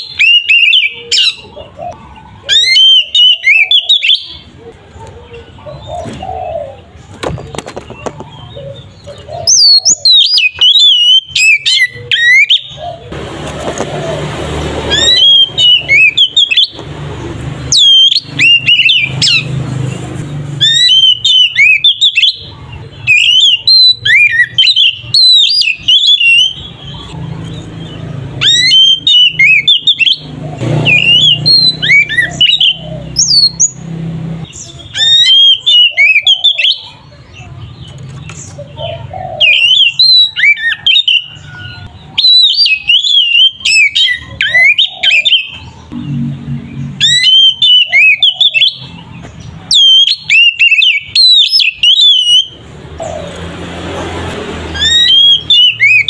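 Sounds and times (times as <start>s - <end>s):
bird singing whistled phrases: 0.0s - 1.5s, 9.4s - 12.8s, 14.9s - 16.8s, 17.7s - 19.5s, 20.6s - 27.2s, 28.4s - 33.8s, 34.5s - 37.0s, 39.4s - 45.6s, 47.0s - 49.0s, 49.7s - 52.6s, 54.8s - 56.0s.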